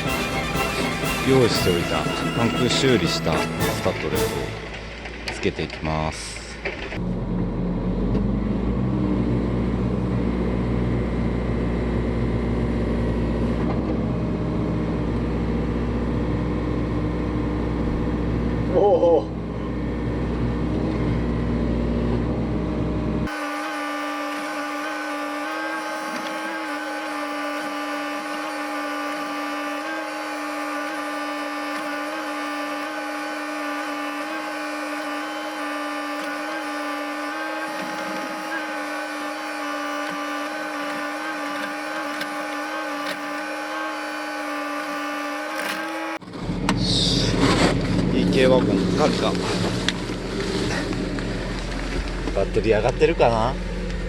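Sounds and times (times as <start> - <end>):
small electric motor whine: 0.0 - 5.3, 19.4 - 46.8.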